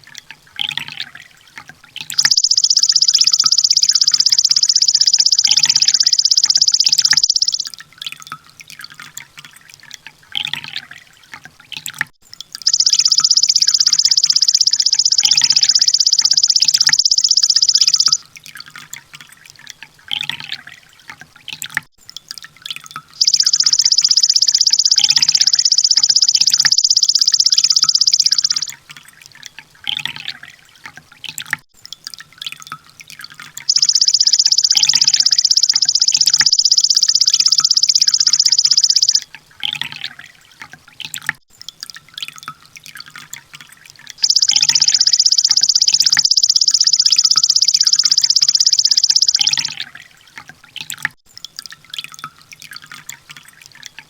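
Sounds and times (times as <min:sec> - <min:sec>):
bird's rapid ticking trill: 0:02.1 - 0:07.8, 0:12.6 - 0:18.2, 0:23.2 - 0:28.8, 0:33.6 - 0:39.9, 0:44.2 - 0:50.0
soft bird chirps: 0:02.1 - 0:07.8, 0:12.6 - 0:18.2, 0:23.2 - 0:28.7, 0:33.7 - 0:39.9, 0:44.2 - 0:50.0.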